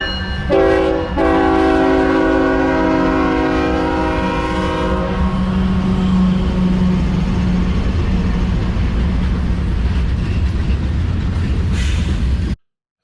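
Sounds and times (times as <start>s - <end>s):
locomotive engine rumble: 0.2s - 12.6s
locomotive air horn: 0.5s - 7.0s.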